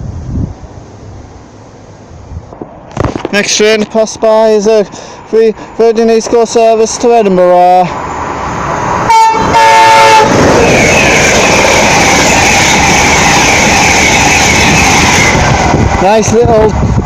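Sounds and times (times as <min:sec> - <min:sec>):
train wheels rumbling on rail: 0:00.0 - 0:17.0
train horn: 0:09.0 - 0:11.2.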